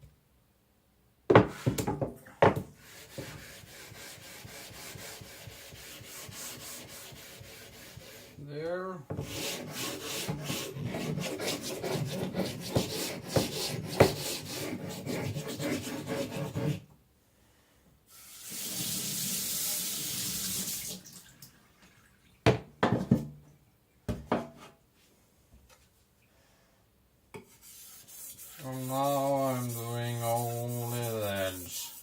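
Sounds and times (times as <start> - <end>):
blade scraping on wet whetstone: 9.2 - 16.8
tap water running: 18.1 - 22.6.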